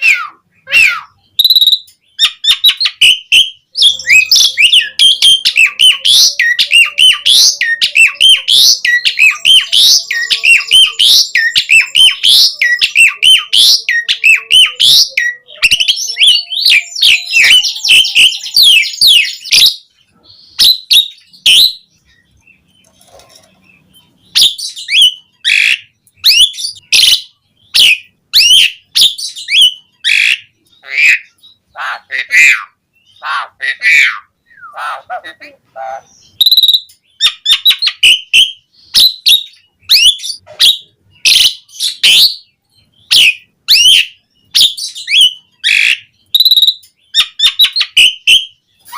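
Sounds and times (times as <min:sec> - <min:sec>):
starling chattering and whistling: 0:00.6 - 0:19.8, 0:36.0 - 0:42.4, 0:43.0 - 0:48.9.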